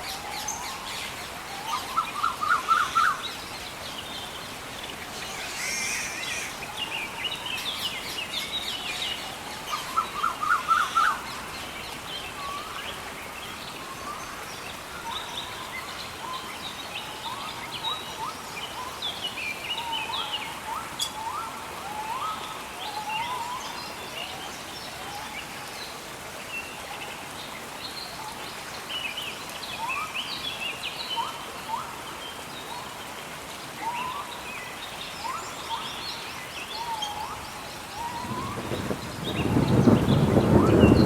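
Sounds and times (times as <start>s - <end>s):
gentle rain hiss: 0.0s - 41.0s
birds singing and chirping: 33.8s - 41.0s.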